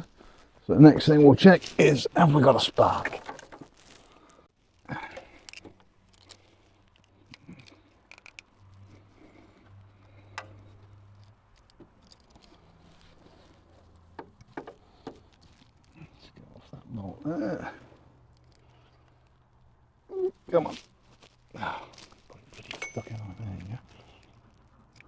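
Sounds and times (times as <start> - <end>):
clicks and knocks of tools: 4.8 - 8.5, 10.0 - 13.2, 22.4 - 23.4.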